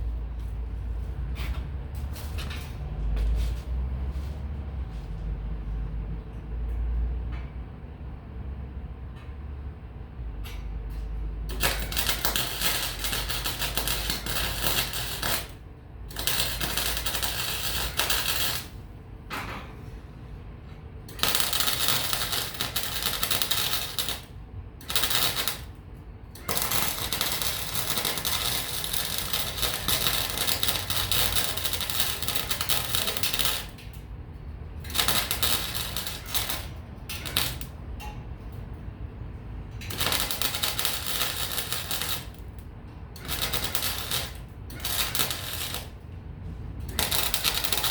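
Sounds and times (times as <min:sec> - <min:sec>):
welding arc crackling: 0:11.5 - 0:18.9, 0:21.0 - 0:37.8, 0:39.8 - 0:46.1, 0:46.8 - 0:47.9.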